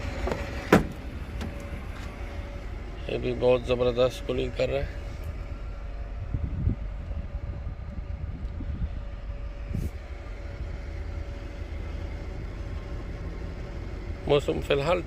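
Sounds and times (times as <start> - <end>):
air conditioning hum: 0.0 - 15.0
car engine idling: 0.0 - 15.0
thump: 0.3 - 1.6.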